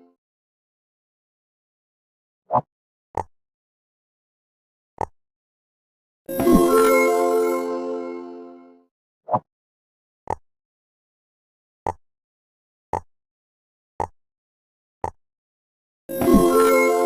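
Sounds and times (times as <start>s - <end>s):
background music: 6.3s - 8.8s, 16.1s - 17.0s.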